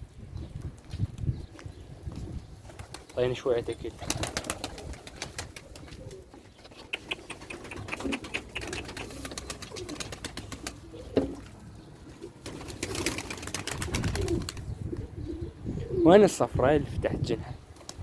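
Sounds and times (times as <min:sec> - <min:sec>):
pigeons cooing: 0:04.0 - 0:16.2.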